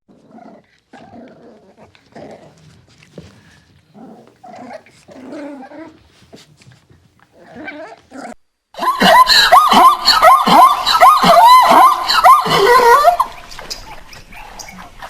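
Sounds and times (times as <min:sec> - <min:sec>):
animal growls and whimpers: 0:00.1 - 0:02.6, 0:04.0 - 0:06.0, 0:07.4 - 0:08.4.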